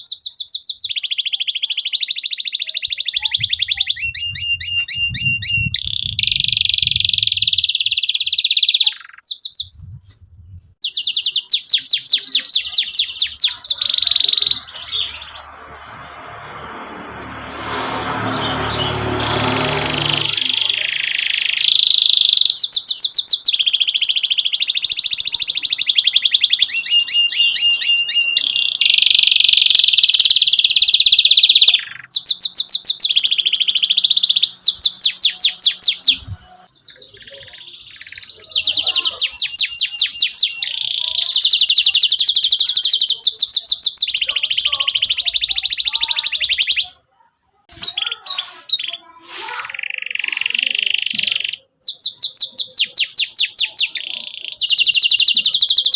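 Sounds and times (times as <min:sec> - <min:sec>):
canary singing trills: 0:00.0 - 0:16.8, 0:17.4 - 0:47.1, 0:47.7 - 0:55.9.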